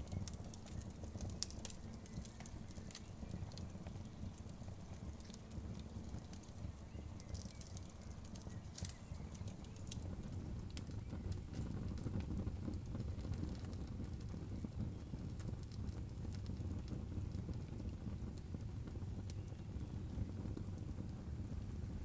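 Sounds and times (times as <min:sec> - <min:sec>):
logs crackling and popping: 0:00.0 - 0:22.0
low rumble of flames: 0:00.0 - 0:22.0.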